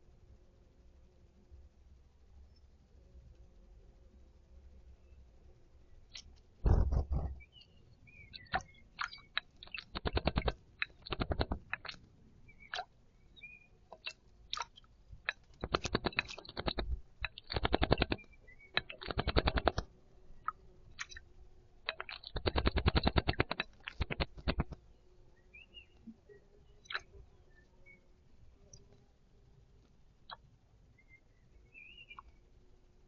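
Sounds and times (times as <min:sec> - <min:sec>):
faint bird chirps: 0:02.4 - 0:02.9, 0:04.8 - 0:21.3, 0:21.9 - 0:29.0, 0:30.2 - 0:32.6
bird splashing water: 0:08.3 - 0:12.0, 0:13.9 - 0:21.2, 0:21.8 - 0:24.8.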